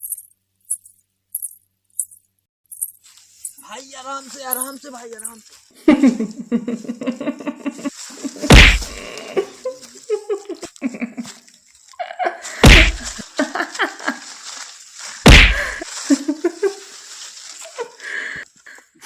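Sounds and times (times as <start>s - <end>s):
heavy thuds with deep boom: 8.5s - 9.0s, 12.6s - 13.2s, 15.3s - 15.8s.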